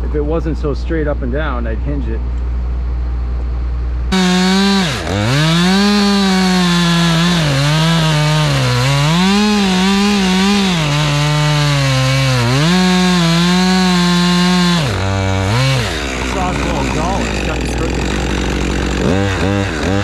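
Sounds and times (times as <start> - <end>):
chainsaw cutting tree trunk: 4.1 - 20.0.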